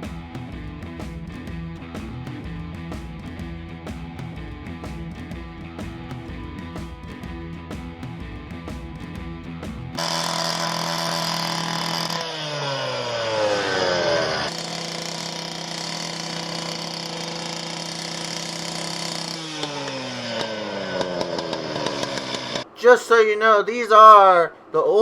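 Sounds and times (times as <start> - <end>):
gas-powered saw cutting metal pipe: 10.0 - 22.7.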